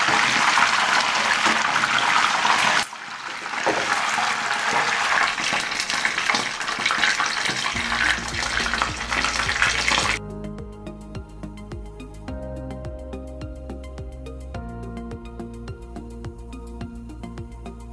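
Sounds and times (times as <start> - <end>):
fish sizzling in oil: 0.0 - 10.2
music: 7.1 - 17.9.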